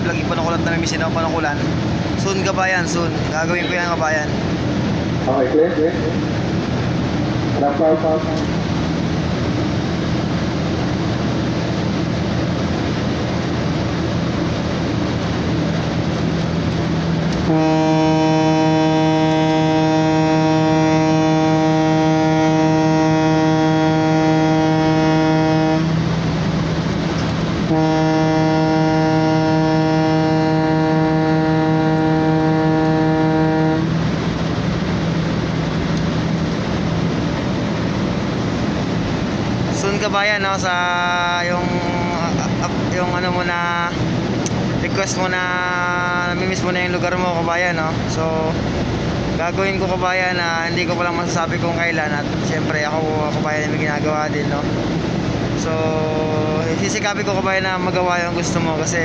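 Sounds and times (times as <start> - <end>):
ship engines droning: 0.0 - 59.0
ship's horn blasts: 16.3 - 50.0.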